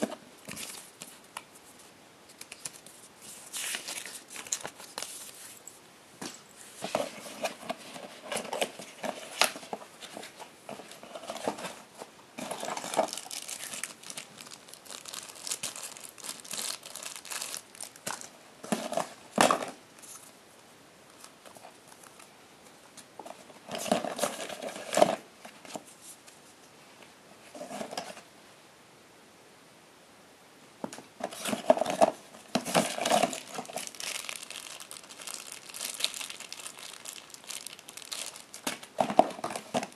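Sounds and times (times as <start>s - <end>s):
packaging crinkling and tearing: 2.4s - 5.6s, 12.4s - 19.6s, 31.3s - 39.9s.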